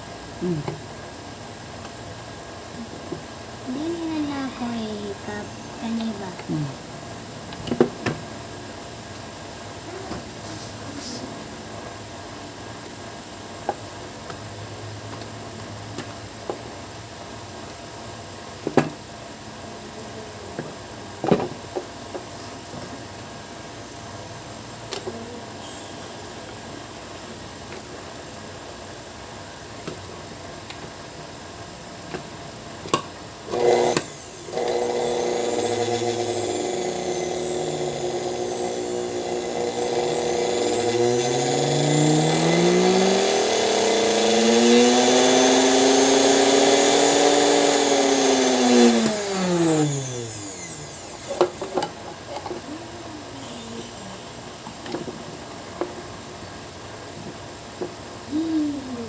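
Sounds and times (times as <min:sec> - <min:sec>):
sewing machine motor whirring: 0:33.5 - 0:51.7.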